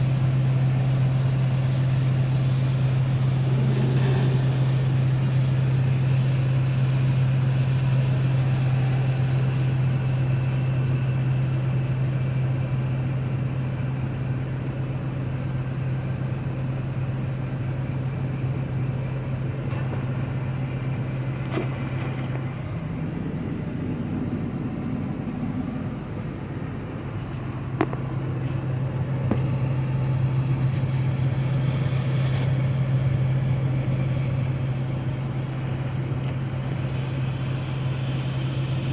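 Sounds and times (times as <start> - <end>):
machinery engine humming: 0.0 - 38.9
rougher higher machine sound: 0.9 - 10.6.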